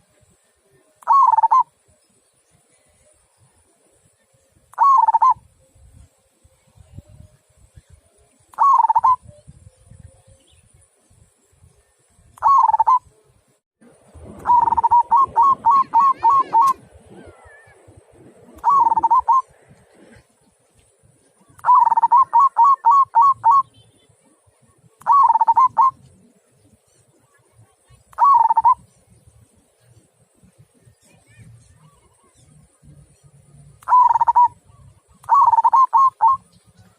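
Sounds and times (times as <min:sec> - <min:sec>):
dove cooing: 0:01.0 - 0:01.7, 0:04.8 - 0:05.4, 0:08.5 - 0:09.4, 0:12.4 - 0:13.1, 0:14.4 - 0:17.8, 0:18.4 - 0:20.3, 0:21.4 - 0:23.7, 0:25.0 - 0:26.2, 0:28.2 - 0:28.8, 0:33.8 - 0:36.6.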